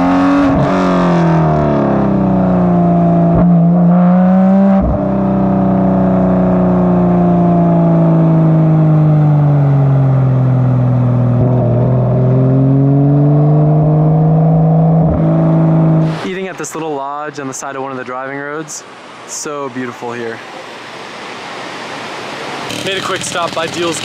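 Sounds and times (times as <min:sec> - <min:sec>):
sports car engine under load: 0:00.0 - 0:16.6, 0:21.7 - 0:24.0.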